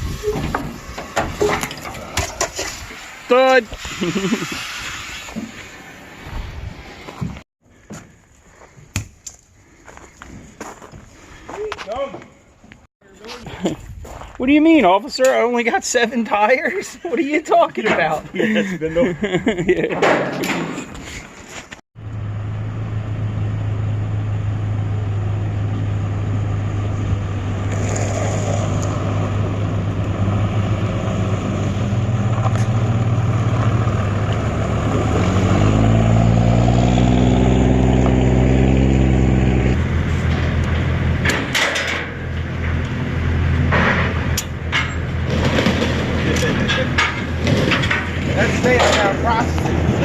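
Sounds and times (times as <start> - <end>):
engine running and revving: 22.0 - 41.6.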